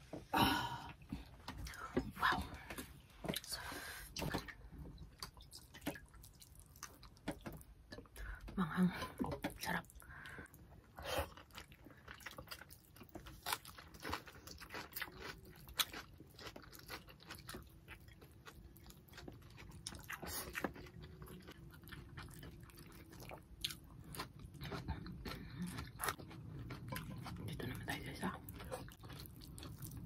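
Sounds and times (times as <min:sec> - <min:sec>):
chewing and mouth smacking: 0:11.2 - 0:30.0.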